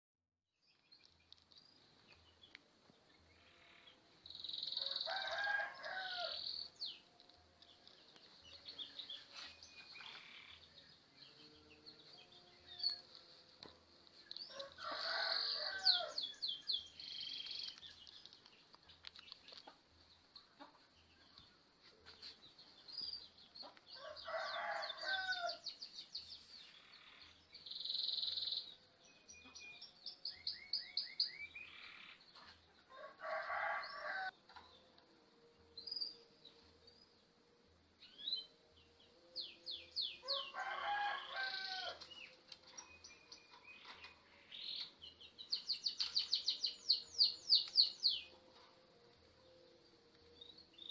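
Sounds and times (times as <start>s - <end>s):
small birds chirping: 0.6s - 35.0s, 38.0s - 50.9s
rooster crowing: 4.7s - 6.4s, 14.5s - 16.2s, 24.0s - 25.6s, 32.9s - 34.4s, 40.2s - 42.0s.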